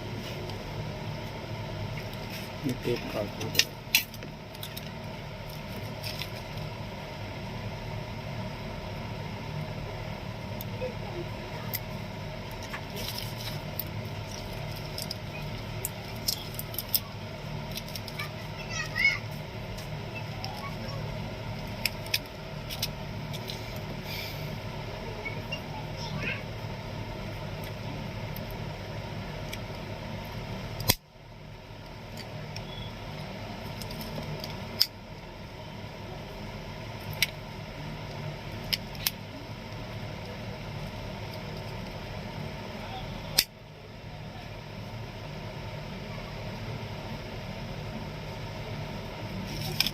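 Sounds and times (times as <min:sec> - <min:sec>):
low background hum: 0:00.0 - 0:49.9
blade and plastic parts clicking: 0:12.6 - 0:17.0.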